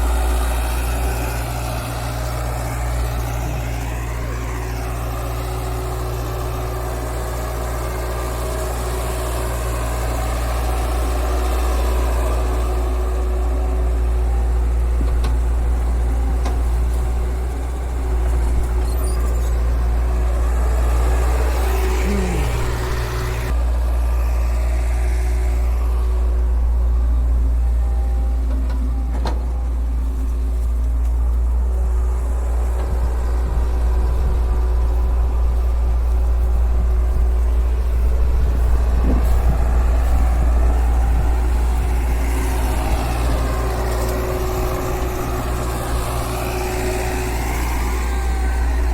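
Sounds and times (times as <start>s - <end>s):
diesel engine humming: 0.0s - 48.9s.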